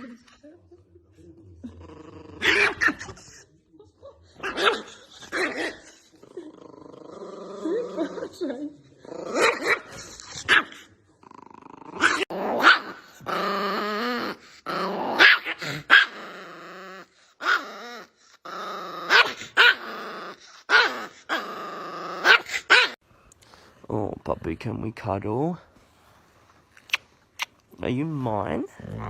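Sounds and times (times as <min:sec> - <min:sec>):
small dog growling: 0:01.6 - 0:03.4, 0:04.4 - 0:23.0, 0:28.6 - 0:29.0.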